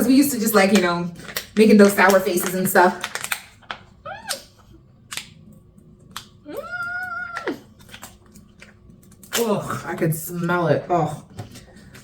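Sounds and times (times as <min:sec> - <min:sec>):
woman's vocal squeak: 0:04.1 - 0:04.5.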